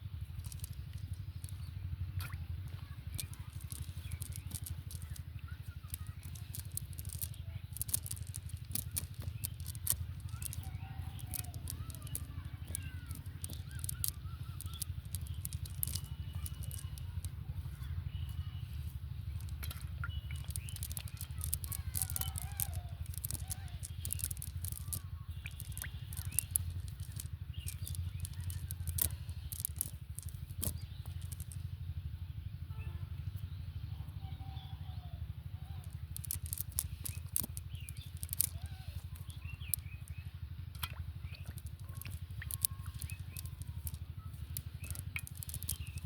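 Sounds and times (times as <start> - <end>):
steady low rumble: 0.0 - 34.2
sharp clicks and crackles: 0.1 - 17.4, 19.2 - 31.6, 35.8 - 46.0
faint voices: 2.5 - 31.5.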